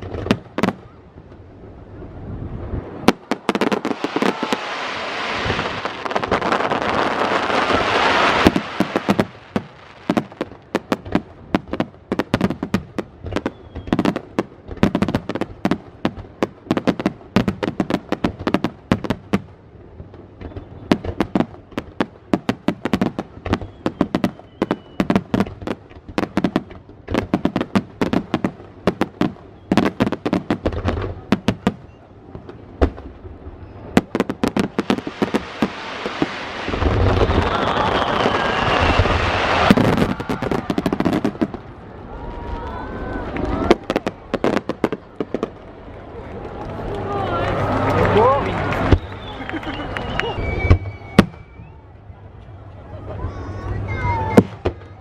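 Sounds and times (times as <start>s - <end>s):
fireworks hissing crackle: 2.4s - 19.3s, 32.5s - 45.8s, 48.1s - 51.7s.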